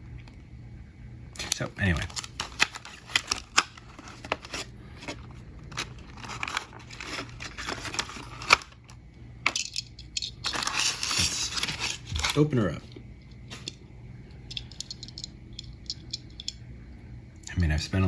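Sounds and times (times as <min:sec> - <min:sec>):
packaging rustling and tearing: 0:01.4 - 0:08.9, 0:10.3 - 0:12.5.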